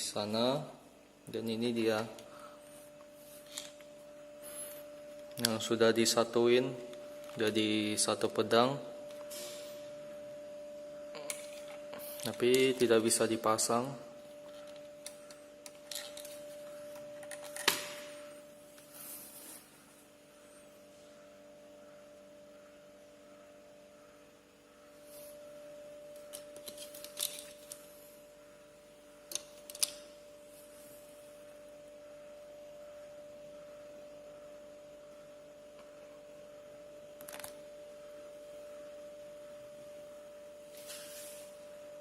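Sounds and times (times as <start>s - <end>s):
steady hum: 0.0s - 42.0s
plastic parts clicking and rubbing: 14.5s - 17.9s, 26.2s - 27.8s, 29.3s - 30.0s.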